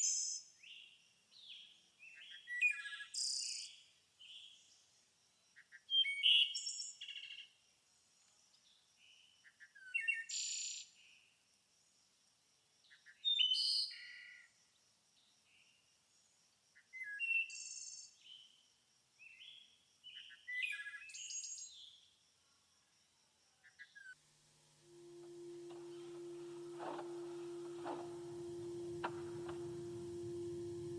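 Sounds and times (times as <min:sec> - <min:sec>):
songbird chirping and trilling: 0:13.1 - 0:14.0
faint high-pitched tone: 0:24.7 - 0:30.9.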